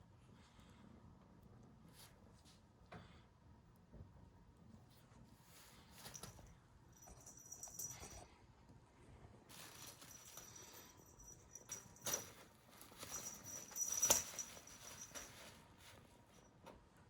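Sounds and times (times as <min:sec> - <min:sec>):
cat rustling and scuffling: 0:04.8 - 0:08.2, 0:09.4 - 0:16.9.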